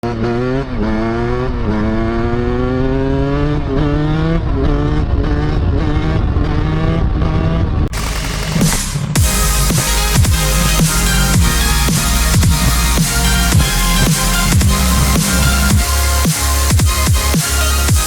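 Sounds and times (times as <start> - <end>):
dirt bike engine revving: 0.0 - 18.0
electronic dance music: 7.9 - 18.0.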